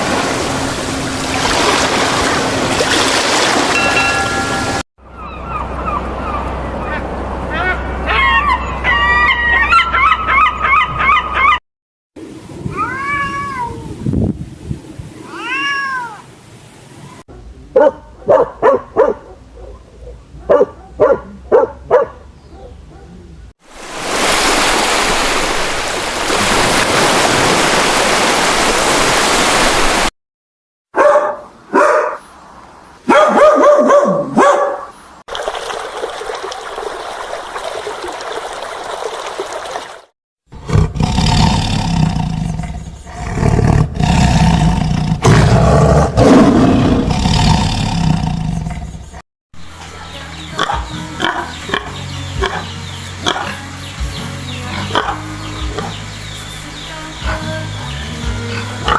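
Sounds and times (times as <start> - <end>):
dog barks: 17.3 - 23.3, 30.9 - 32.3, 33.1 - 35.0, 53.3 - 53.6
large animals roaring: 40.6 - 48.9.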